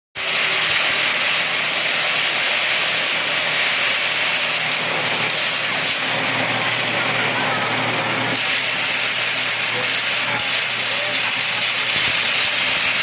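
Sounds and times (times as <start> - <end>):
nut-cracking machine rushing hiss: 0.2 - 13.0.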